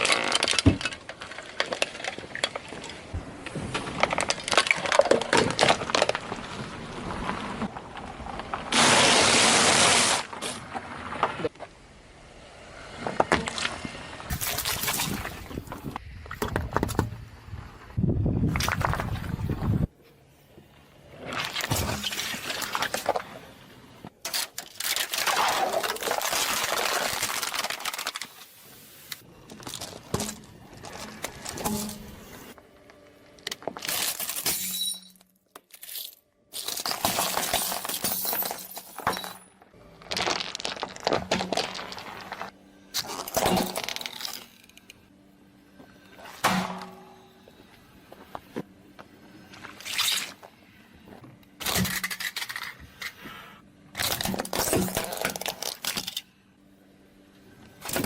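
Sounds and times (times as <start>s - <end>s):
tyre crushing objects: 40.0s - 44.4s.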